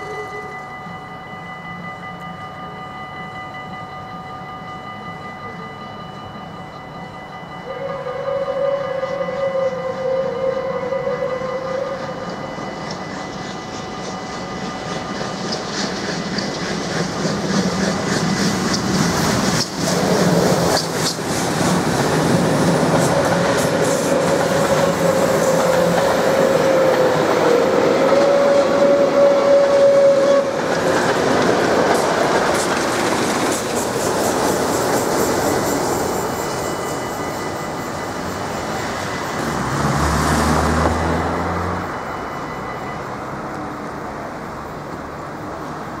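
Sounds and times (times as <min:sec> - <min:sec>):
steady high tone: 0:00.0 - 0:46.0
train wheels clattering over joints: 0:12.0 - 0:39.6.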